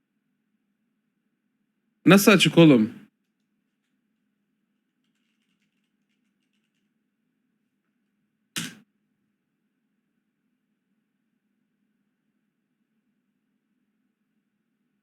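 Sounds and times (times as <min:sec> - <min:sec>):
keyboard typing: 0:03.2 - 0:04.0, 0:04.7 - 0:07.0
sharp knock: 0:08.6 - 0:08.8.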